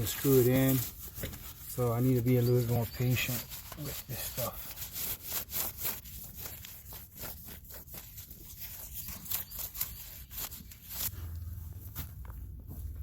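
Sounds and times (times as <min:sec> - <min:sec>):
hand saw cutting wood: 0:00.0 - 0:11.2
low steady hum: 0:10.7 - 0:13.0.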